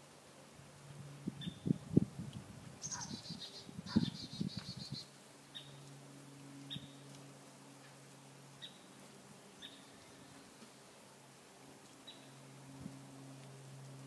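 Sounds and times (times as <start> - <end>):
bird short high chirps: 2.8 - 5.7
bird trilling: 2.8 - 5.7.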